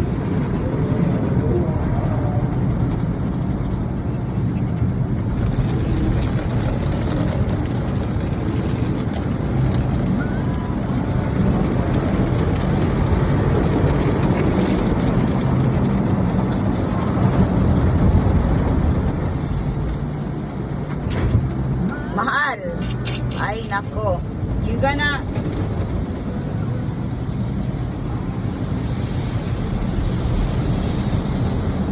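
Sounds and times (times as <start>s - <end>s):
car wash water spray: 5.7s - 31.9s.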